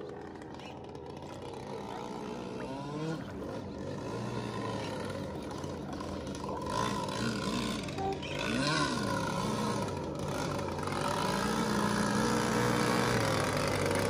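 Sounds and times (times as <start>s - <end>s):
boat engine running: 0.0s - 14.0s
faint voices: 0.1s - 9.9s.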